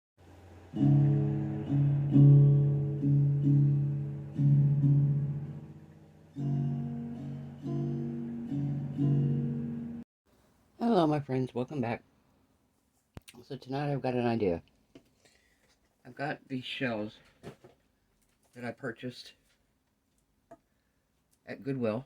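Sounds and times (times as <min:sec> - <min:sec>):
plucked guitar chords: 0:00.6 - 0:10.0.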